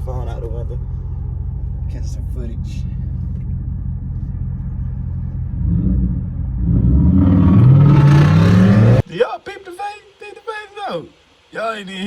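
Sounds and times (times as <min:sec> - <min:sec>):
car engine idling and revving: 0:00.0 - 0:09.1.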